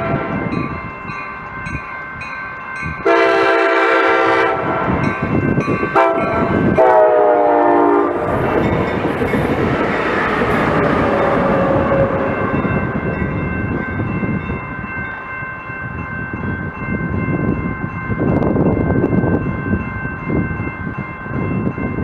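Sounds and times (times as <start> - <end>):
train rumbling past: 0.0 - 22.0
steady high tones: 7.8 - 21.6.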